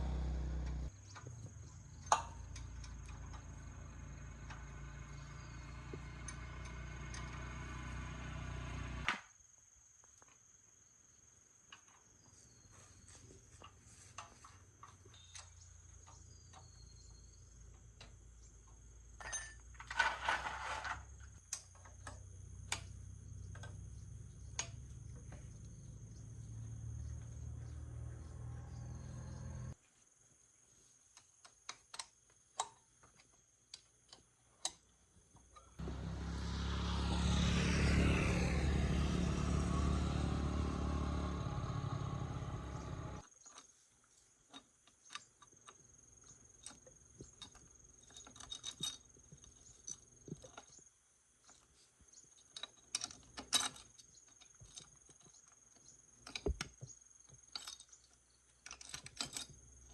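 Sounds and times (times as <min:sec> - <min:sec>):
motor-driven machine humming: 0:02.6 - 0:09.1, 0:35.8 - 0:43.2.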